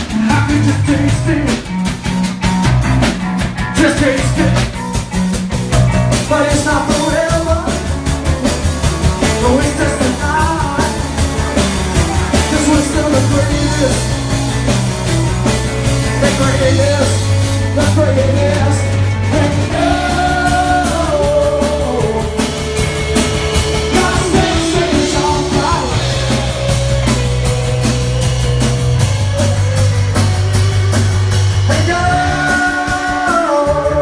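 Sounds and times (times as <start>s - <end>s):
rock band playing: 0.0s - 34.0s
person singing: 6.2s - 8.0s, 9.0s - 14.4s, 16.0s - 23.0s, 23.6s - 34.0s.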